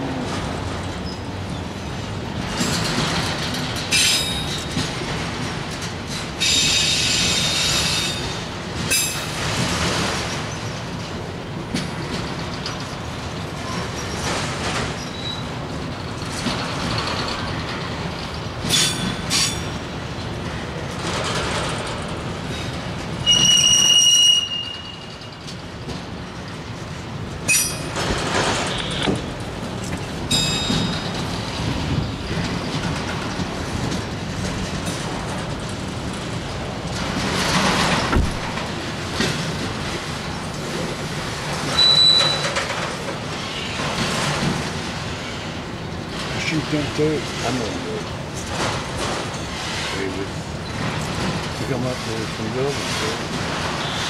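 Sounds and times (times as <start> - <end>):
freight cars rumbling on rails: 0.0 - 54.0
high-pitched wheel squeals: 23.2 - 25.2, 41.8 - 42.5.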